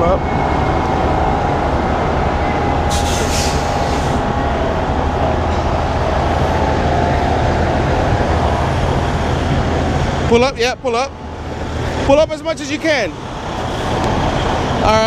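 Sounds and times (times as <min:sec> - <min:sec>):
truck diesel engine rumbling: 0:00.0 - 0:15.0
short air hiss: 0:02.9 - 0:04.2.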